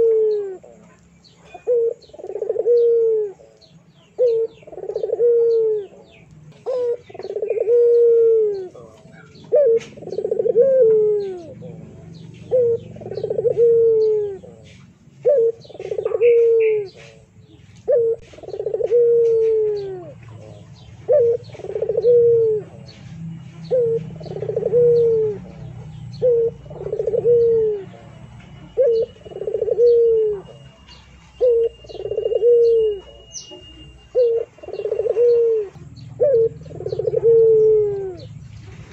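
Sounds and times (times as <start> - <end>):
bird calling in low notes: 0.0 - 0.8, 1.5 - 38.5
faint higher chirps: 0.0 - 38.9.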